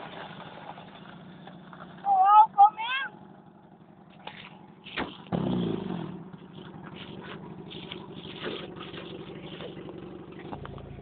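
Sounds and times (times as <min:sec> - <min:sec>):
car engine revving: 0:03.3 - 0:11.0.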